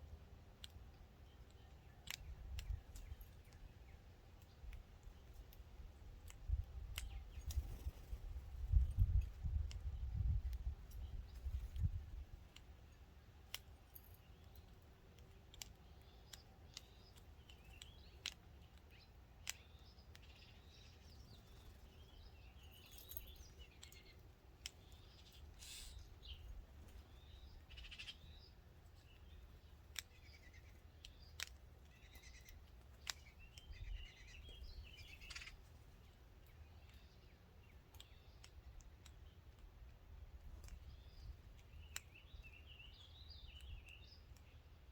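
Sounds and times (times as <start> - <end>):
small birds chirping: 0.0 - 44.9
sharp clicks: 29.9 - 33.8.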